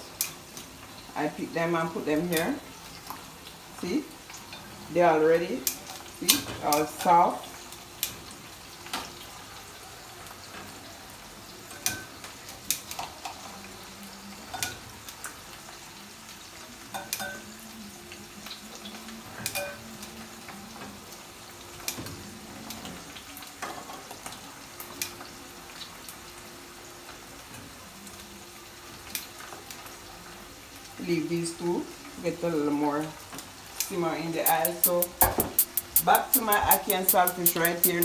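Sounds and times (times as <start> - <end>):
dumplings sizzling in oil: 0.0 - 38.0
metal tongs clinking on pan: 11.7 - 13.1, 16.9 - 17.5, 19.4 - 19.8.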